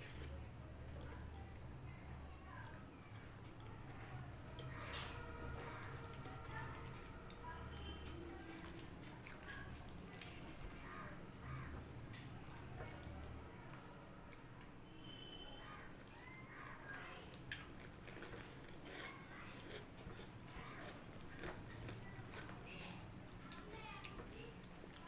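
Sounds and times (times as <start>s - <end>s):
food mixed by hand: 2.4s - 25.0s
chewing smacks: 4.6s - 14.5s, 16.6s - 25.0s.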